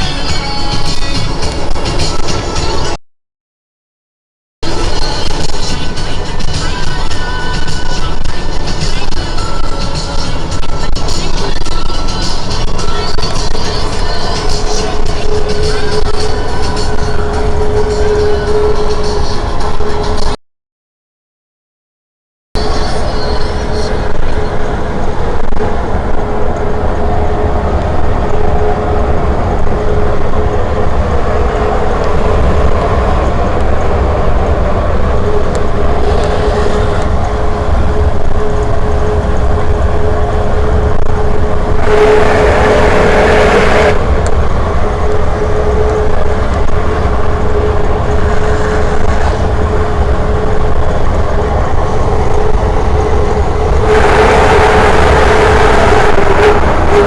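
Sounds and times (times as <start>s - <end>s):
rush of noise: 22.6s - 57.0s
truck diesel engine under load: 22.6s - 57.0s.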